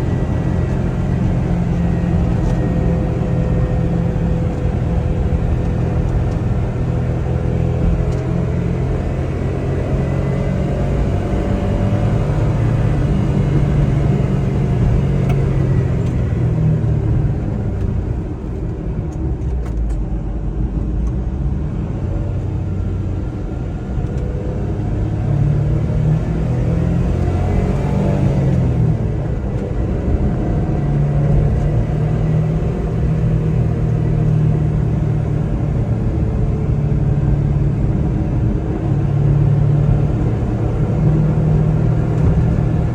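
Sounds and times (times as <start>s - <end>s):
small truck engine running: 0.0s - 19.3s
road noise: 0.0s - 42.9s.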